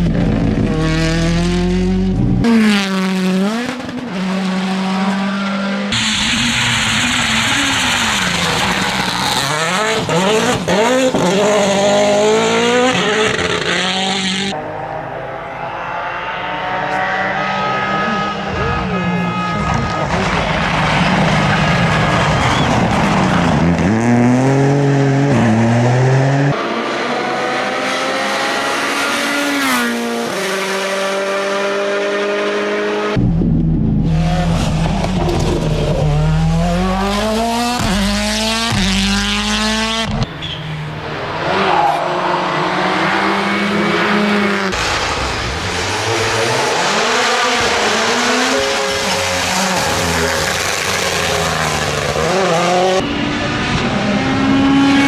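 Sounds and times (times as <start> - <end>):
rally car engines at full throttle: 0.0 - 55.0
car braking: 2.5 - 14.5, 16.5 - 24.5, 34.0 - 55.0.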